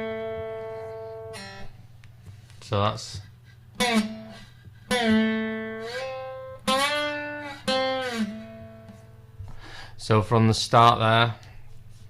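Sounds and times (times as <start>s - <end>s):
slide guitar notes: 0.0s - 1.8s, 3.8s - 9.3s.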